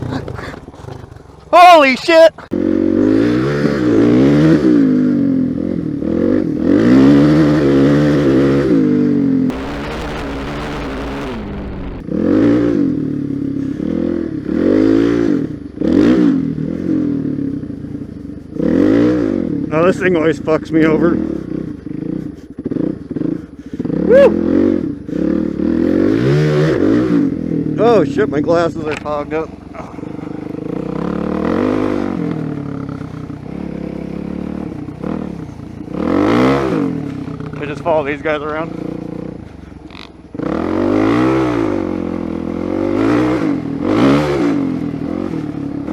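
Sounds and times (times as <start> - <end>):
motorcycle engine revving: 2.6 - 13.3, 14.4 - 45.9.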